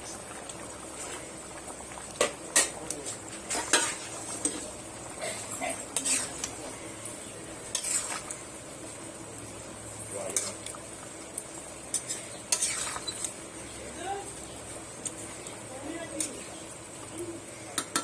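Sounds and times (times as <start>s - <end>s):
metal utensil scraping pot: 2.2s - 6.9s, 7.6s - 8.4s, 10.3s - 10.7s, 11.9s - 13.4s.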